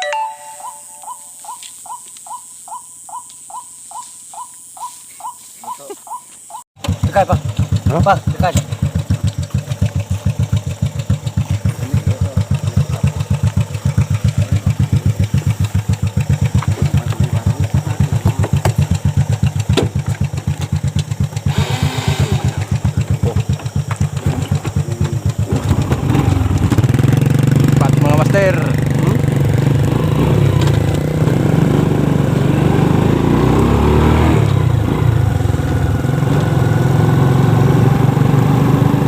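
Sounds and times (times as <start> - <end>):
small engine thumping: 6.8 - 33.8.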